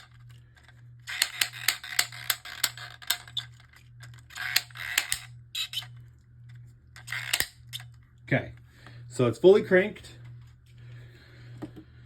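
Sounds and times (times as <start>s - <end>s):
plastic ratchet clicking: 0.0s - 5.9s, 7.0s - 7.9s.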